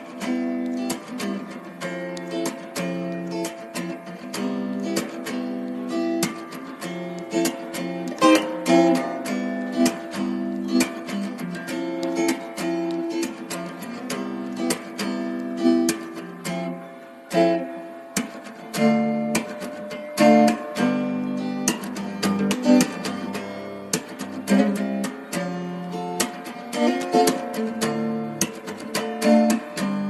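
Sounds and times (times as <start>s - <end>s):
acoustic guitar music: 0.0s - 30.0s.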